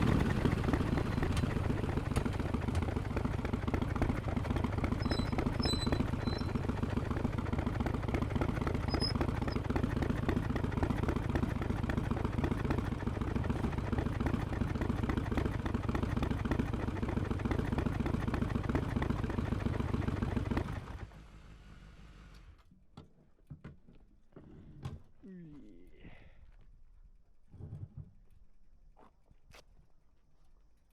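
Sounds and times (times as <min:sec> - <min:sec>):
motorcycle engine running: 0:00.0 - 0:22.5.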